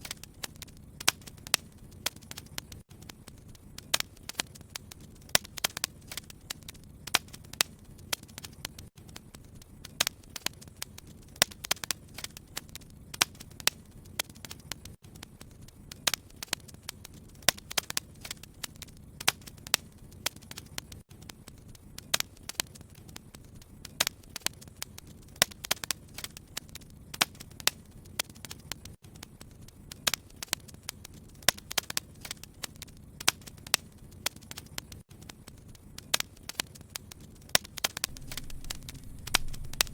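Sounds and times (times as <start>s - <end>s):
wood fire crackling: 0.0s - 39.9s
steady low hum: 38.0s - 39.9s.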